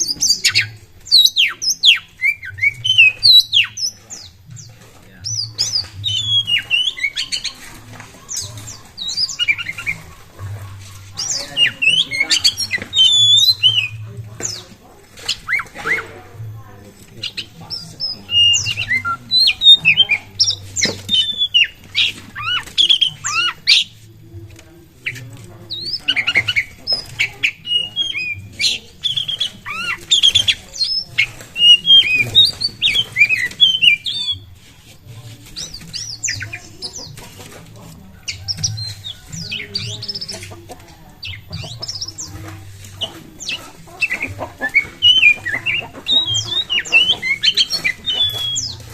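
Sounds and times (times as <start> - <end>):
bird singing whistled notes: 0.0 - 7.6, 11.2 - 14.6, 17.2 - 24.0, 25.0 - 34.6, 43.0 - 48.9.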